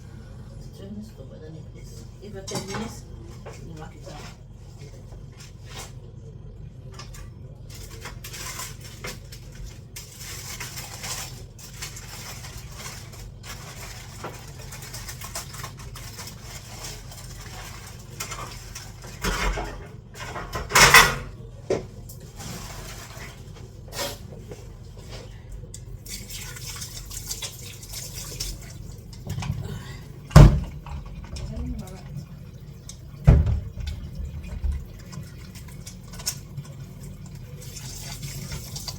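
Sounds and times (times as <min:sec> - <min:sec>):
steady low hum: 0:00.0 - 0:38.6
pots and pans clinking: 0:02.4 - 0:04.4, 0:07.0 - 0:24.2, 0:28.6 - 0:38.9.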